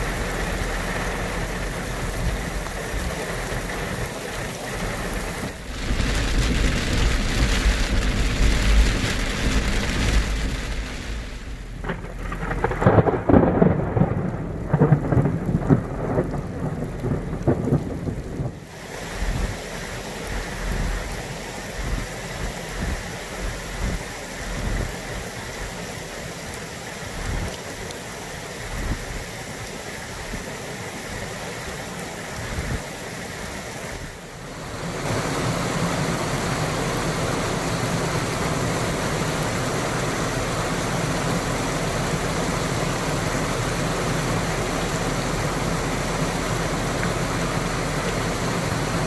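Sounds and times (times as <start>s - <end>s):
heavy rain falling: 0.0s - 49.0s
thunder rolling: 5.4s - 18.6s.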